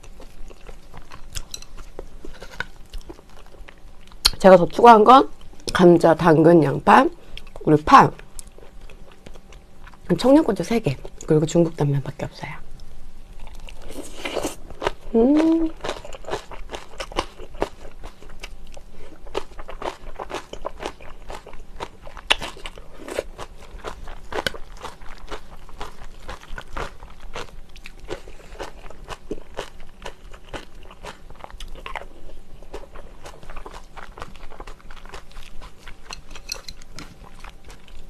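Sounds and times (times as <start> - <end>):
chewing with wet mouth sounds: 0.0 - 4.4, 12.8 - 38.0.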